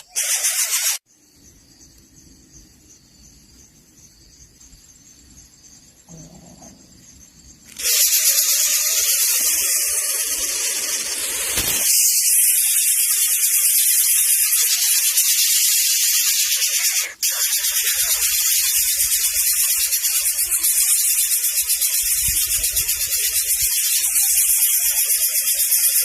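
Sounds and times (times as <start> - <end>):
nestlings hissing: 7.6 - 26.0.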